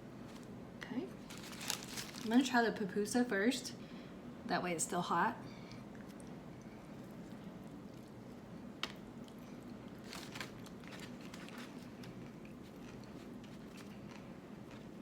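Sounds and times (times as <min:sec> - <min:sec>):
crisp crunches: 0:01.2 - 0:02.5, 0:09.9 - 0:14.8
person chewing food: 0:05.6 - 0:15.0.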